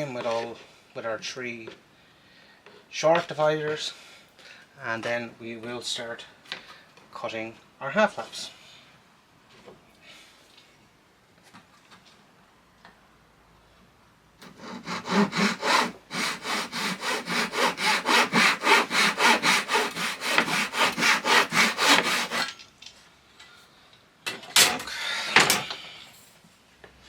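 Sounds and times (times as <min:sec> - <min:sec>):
hand saw cutting plywood: 0:14.4 - 0:22.5.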